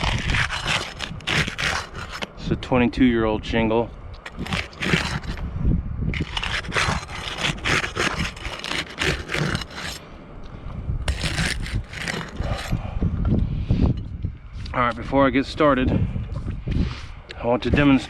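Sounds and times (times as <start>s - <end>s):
scraping on roof shingles: 0.0s - 2.3s, 4.2s - 5.4s, 6.2s - 10.0s, 11.1s - 12.8s.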